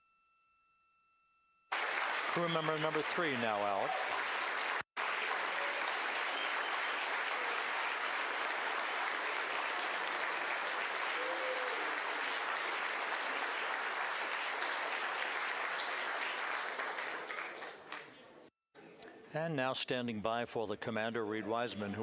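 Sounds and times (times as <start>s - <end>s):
crowd applauding: 1.7s - 18.3s.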